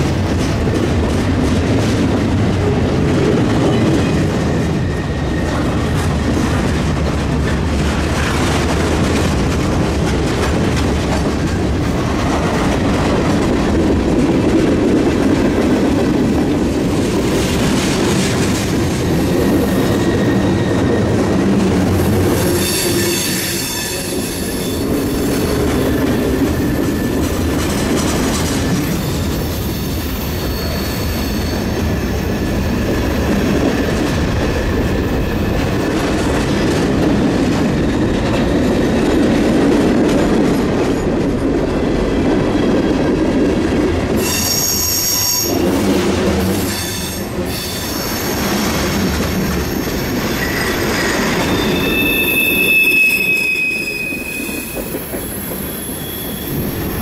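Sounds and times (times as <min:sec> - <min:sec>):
freight train wheels rumbling: 0:00.0 - 0:57.0
high-pitched wheel squeal: 0:22.4 - 0:24.9, 0:29.0 - 0:31.9, 0:50.3 - 0:57.0.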